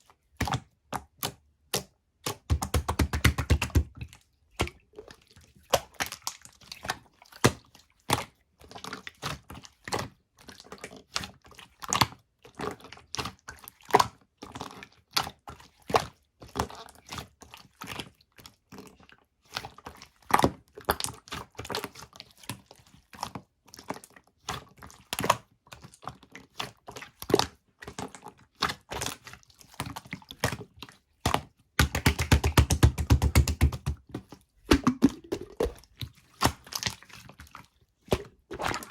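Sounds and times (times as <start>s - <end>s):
slime clicking and popping: 31.8s - 33.9s, 34.7s - 35.8s.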